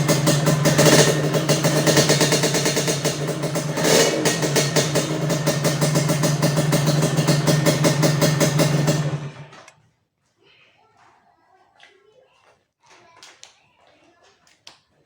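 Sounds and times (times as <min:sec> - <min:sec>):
scooter engine idling: 0:00.0 - 0:09.7.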